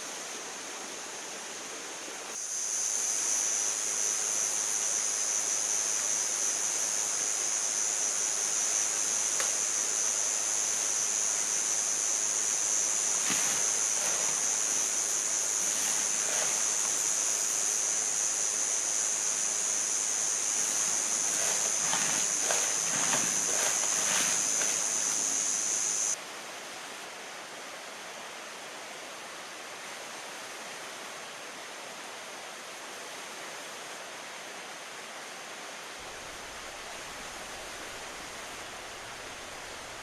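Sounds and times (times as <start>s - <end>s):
cicadas droning: 0.0s - 26.2s, 35.9s - 40.0s
rushing hiss: 0.0s - 26.2s.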